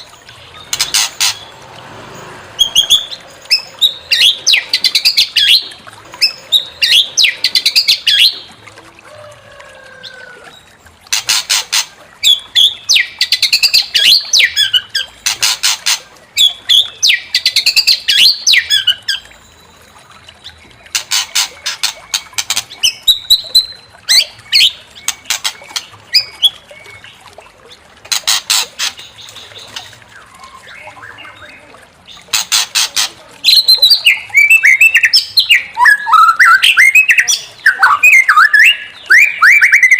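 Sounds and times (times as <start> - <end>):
bird singing whistled phrases: 33.5 - 39.9.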